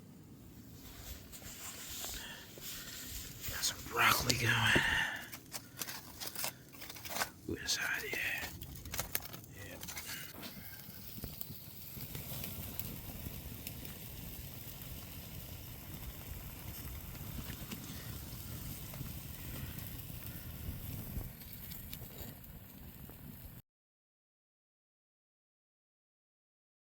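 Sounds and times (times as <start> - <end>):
campfire burning rumble: 0.0 - 23.6
faint fire crackles: 0.0 - 23.6.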